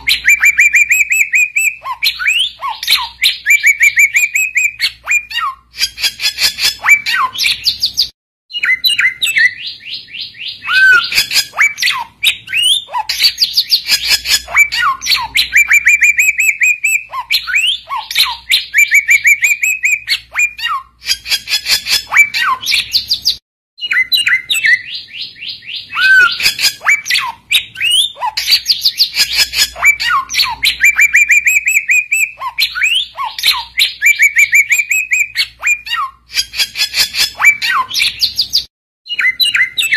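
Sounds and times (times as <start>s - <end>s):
bird singing fast trills: 0.0s - 39.9s.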